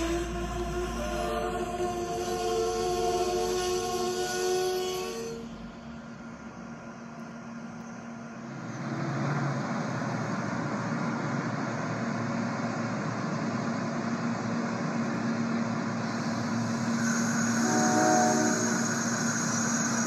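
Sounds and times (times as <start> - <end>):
train passing: 0.0 - 20.0.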